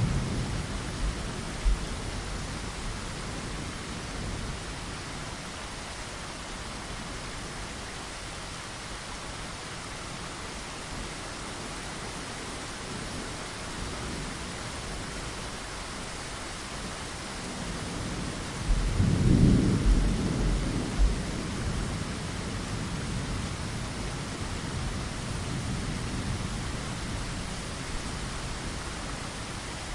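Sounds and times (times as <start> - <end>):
rain falling against a window: 0.0 - 29.9
thunder rolling: 18.7 - 21.6.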